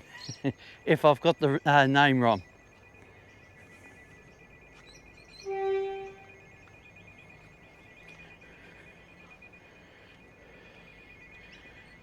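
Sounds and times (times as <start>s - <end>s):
electronic warning bell ringing: 1.0s - 12.0s
loud hoot: 5.4s - 6.4s.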